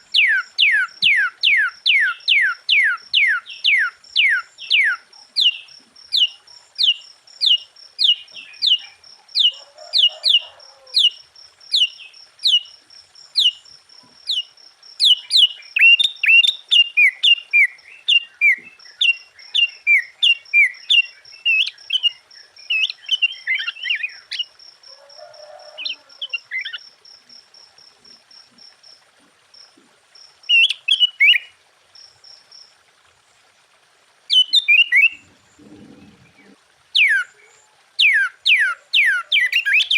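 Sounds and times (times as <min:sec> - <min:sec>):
bulbul singing: 0:00.0 - 0:24.6, 0:34.3 - 0:37.4, 0:38.0 - 0:39.9.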